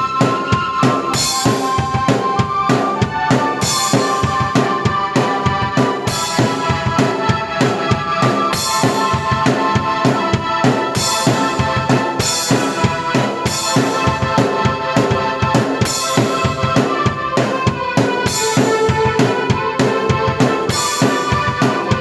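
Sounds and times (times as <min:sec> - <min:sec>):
keyboard chords: 0:00.0 - 0:22.0
kick and snare drum beat: 0:00.0 - 0:22.0.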